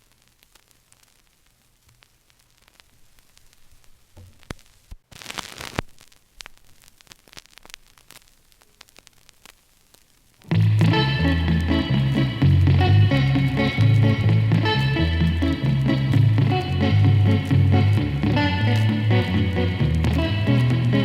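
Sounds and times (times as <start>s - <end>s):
vinyl record crackle and hiss: 0.0s - 21.0s
song playing: 10.5s - 21.0s.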